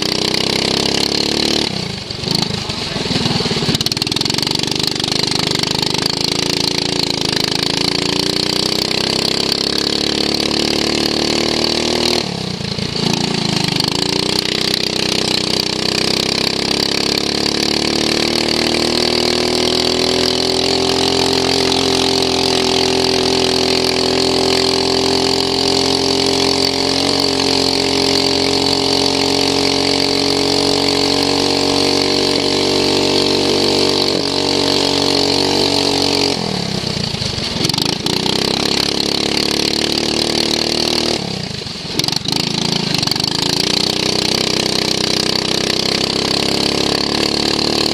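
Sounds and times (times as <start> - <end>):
lawn mower engine at high revs: 0.0 - 47.9.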